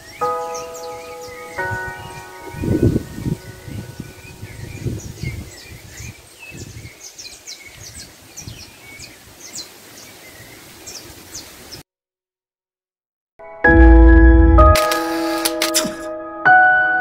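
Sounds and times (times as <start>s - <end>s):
birds chirping and singing: 0.0s - 11.6s.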